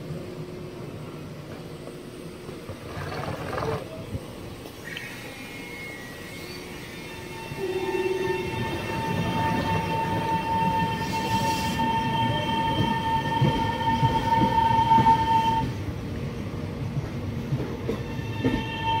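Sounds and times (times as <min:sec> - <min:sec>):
train wheels rumbling on rails: 0:00.1 - 0:04.8, 0:06.4 - 0:19.0
high-pitched squeal: 0:04.8 - 0:12.6.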